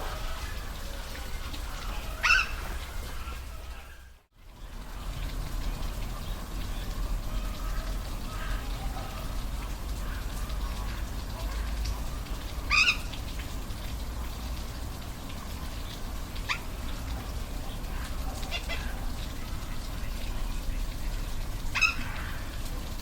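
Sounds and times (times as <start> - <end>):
animal giving high calls: 0.0 - 4.1, 12.7 - 13.1
waterfall rushing: 0.0 - 23.0.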